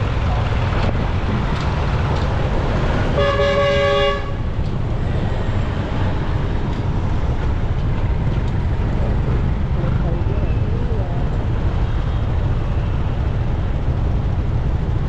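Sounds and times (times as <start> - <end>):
wind rumble on microphone: 0.0 - 9.9
road traffic: 0.0 - 15.0
vehicle horn honking: 3.1 - 4.5.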